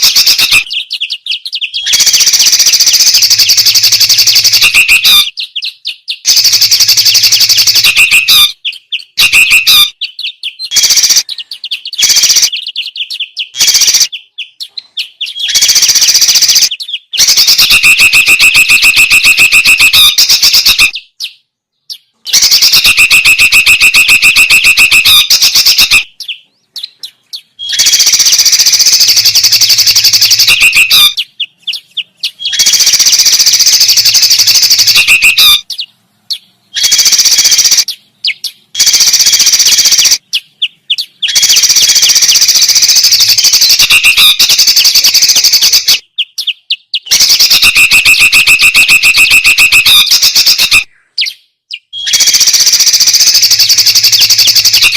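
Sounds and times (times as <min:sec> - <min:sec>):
songbird chirping and trilling: 0:00.0 - 0:54.9.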